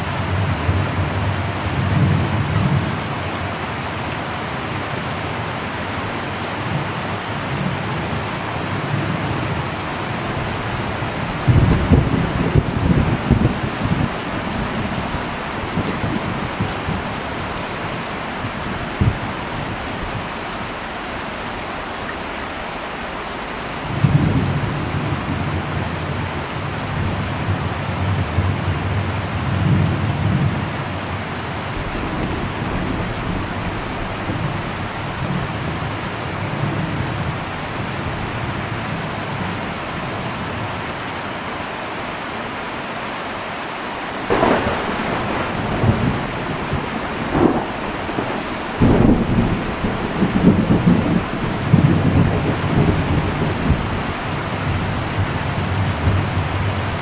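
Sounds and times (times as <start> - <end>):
heavy rain on a metal roof: 0.0 - 57.0
low thunder rumble: 5.8 - 20.4, 23.9 - 38.6, 44.2 - 57.0
sharp thunder cracks: 10.5 - 19.5, 44.2 - 55.3.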